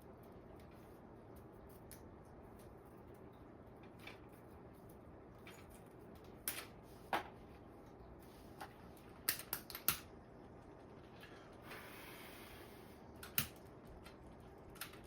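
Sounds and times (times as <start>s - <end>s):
sharp clicks and taps on wiring: 9.2s - 10.1s, 13.2s - 15.0s.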